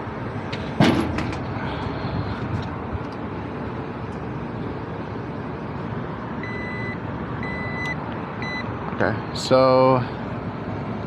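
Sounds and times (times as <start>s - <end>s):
outdoor noise: 0.0s - 11.0s.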